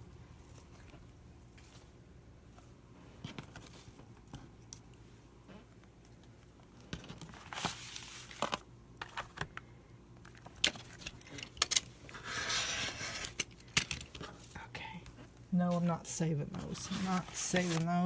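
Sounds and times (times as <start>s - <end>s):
paper scraping: 12.1s - 13.4s, 16.5s - 18.0s
paper rustling: 16.4s - 18.0s.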